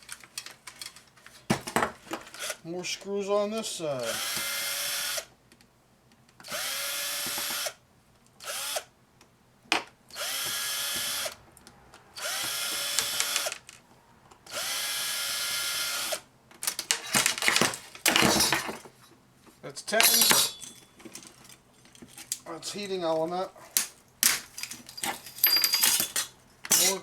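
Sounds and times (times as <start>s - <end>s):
power drill driving screws: 2.3s - 2.6s, 4.0s - 5.3s, 6.4s - 7.8s, 8.4s - 8.9s, 10.1s - 11.4s, 12.2s - 13.7s, 14.5s - 16.2s.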